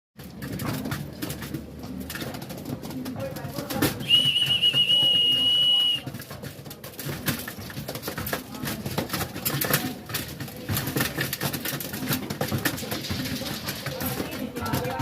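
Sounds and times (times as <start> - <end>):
sharp clicks and scuffs: 0.2 - 15.0.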